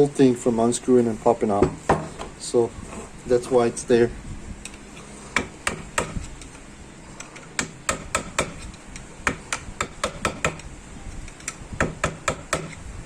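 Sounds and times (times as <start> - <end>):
hammer tapping on metal: 5.4 - 6.2, 7.6 - 8.6, 9.2 - 10.7, 11.4 - 12.8.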